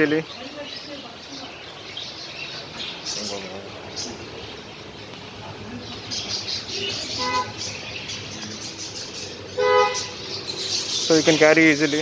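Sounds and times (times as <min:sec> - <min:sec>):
small birds chirping: 0:00.0 - 0:12.0
traffic hum: 0:00.0 - 0:12.0
vehicle horn toot: 0:06.8 - 0:07.6, 0:09.6 - 0:10.2.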